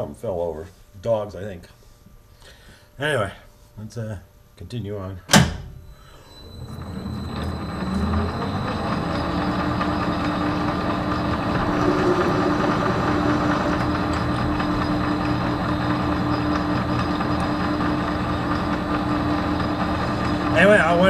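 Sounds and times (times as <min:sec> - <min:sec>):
metal lathe running: 0:06.5 - 0:21.0.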